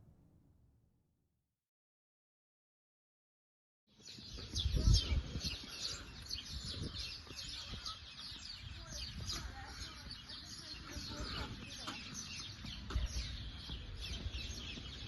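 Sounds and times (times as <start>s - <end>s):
small birds chirping: 3.9s - 15.0s.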